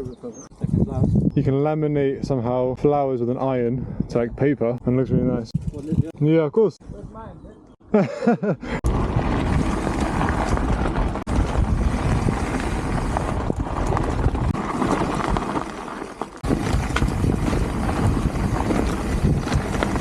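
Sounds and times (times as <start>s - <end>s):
wind buffeting microphone: 0.0s - 6.2s, 8.8s - 15.8s, 16.4s - 20.0s
bike frame rattling: 5.6s - 6.1s, 8.9s - 20.0s
bike tyres rumbling on dirt: 8.8s - 20.0s.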